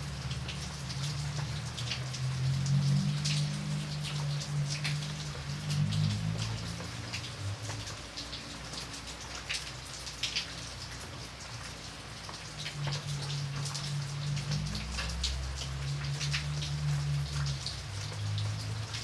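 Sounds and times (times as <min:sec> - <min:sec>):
rain on a window pane: 0:00.0 - 0:19.0.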